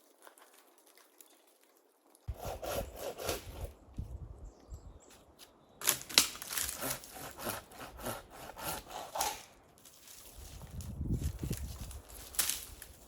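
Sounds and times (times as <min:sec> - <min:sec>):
hand saw cutting wood: 0:02.3 - 0:03.8, 0:06.5 - 0:09.5.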